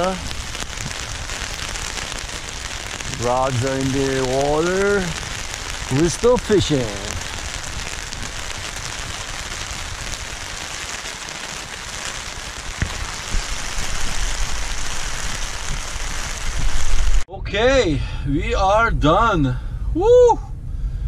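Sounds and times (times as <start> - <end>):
steady rain hissing: 0.0 - 17.3
low rumble: 12.6 - 21.0.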